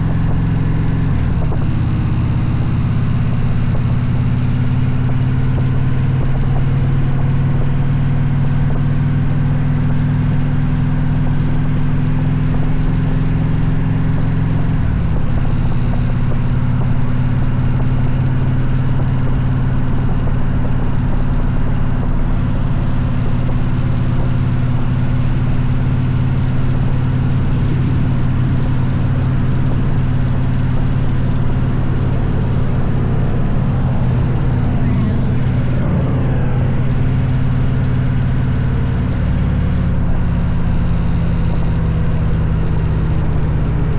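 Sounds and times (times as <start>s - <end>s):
motorcycle engine running steadily: 0.0s - 43.9s.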